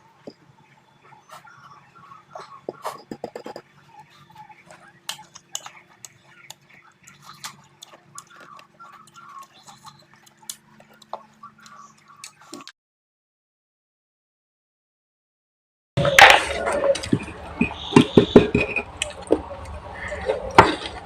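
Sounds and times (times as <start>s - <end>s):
chewing and crunching fruit: 1.1s - 12.7s.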